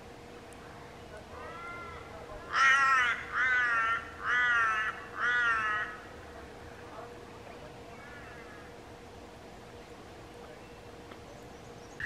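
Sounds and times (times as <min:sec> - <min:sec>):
bird calling harshly: 0:01.4 - 0:06.1.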